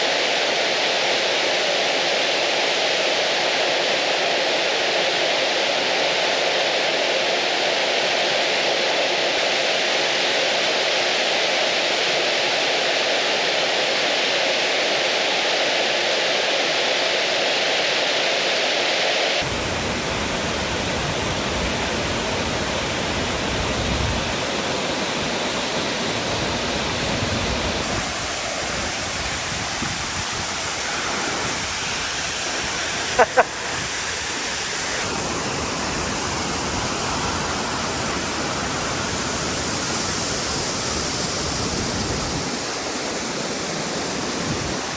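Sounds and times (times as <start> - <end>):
waterfall rushing: 19.4 - 44.9.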